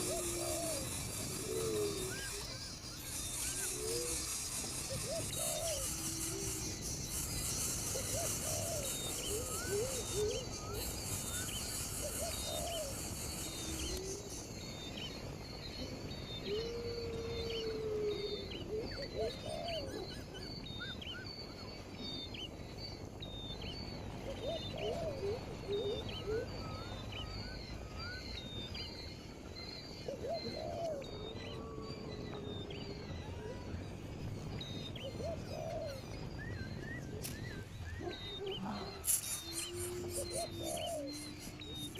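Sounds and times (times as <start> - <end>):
lower whistled bird calls: 0.0 - 41.9
high bird chirps: 35.9 - 41.9.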